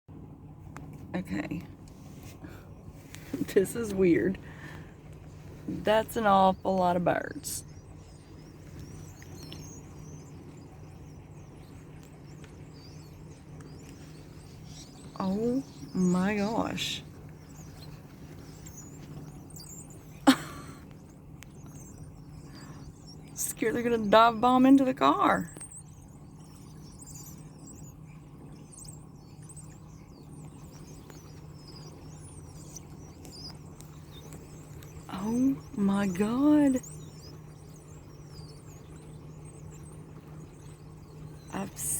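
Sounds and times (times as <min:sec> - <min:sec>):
flock of birds chirping: 0:00.2 - 0:41.9.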